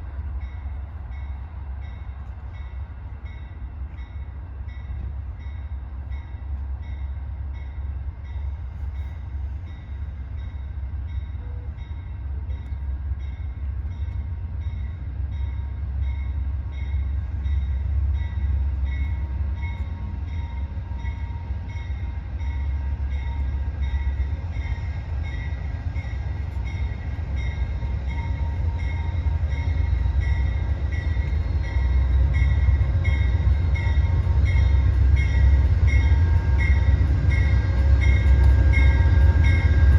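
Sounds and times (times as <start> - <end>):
level-crossing warning bell: 0.0 - 39.9
train rumble: 0.0 - 39.9.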